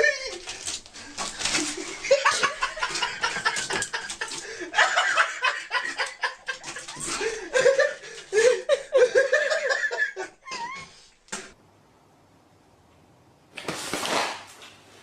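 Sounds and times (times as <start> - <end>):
people laughing: 0.0 - 0.6, 1.3 - 10.8.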